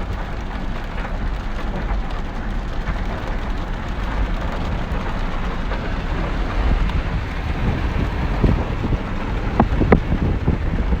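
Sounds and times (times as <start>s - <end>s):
rain falling: 0.0s - 11.0s
wind rumbling on microphone: 0.0s - 11.0s.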